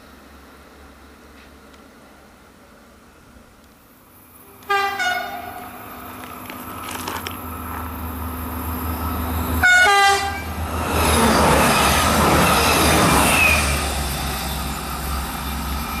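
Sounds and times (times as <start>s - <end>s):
approaching train rumble: 0.0s - 16.0s
train horn blasts: 4.6s - 5.8s, 9.6s - 10.5s.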